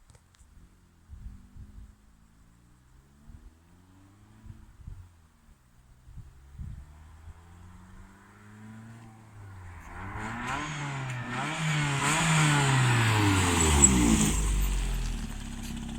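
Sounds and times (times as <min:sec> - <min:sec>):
car engine revving: 0:06.6 - 0:15.9.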